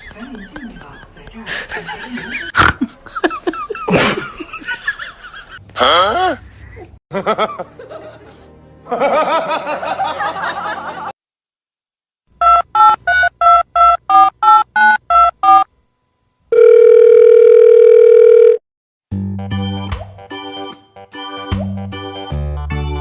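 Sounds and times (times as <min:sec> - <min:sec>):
phone ring tone: 0:12.4 - 0:15.7, 0:16.5 - 0:18.6.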